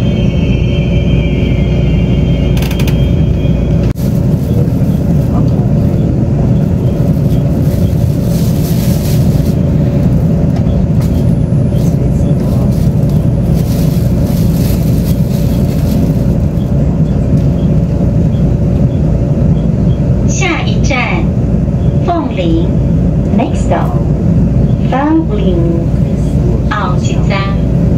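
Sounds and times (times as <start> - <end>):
train wheels rumbling on rail: 0.0 - 27.9.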